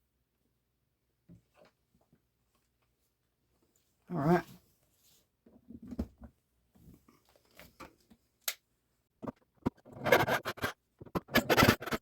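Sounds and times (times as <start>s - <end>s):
scraping and rustling: 9.6s - 12.0s.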